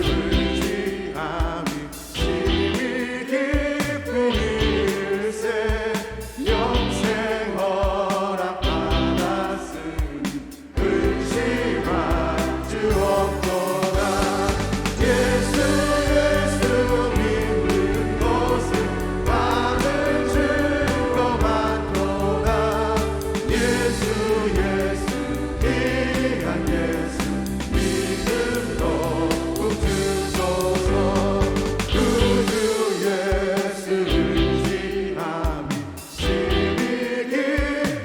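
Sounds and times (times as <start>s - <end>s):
choir singing a hymn: 0.0s - 38.0s
band accompaniment: 10.0s - 37.7s.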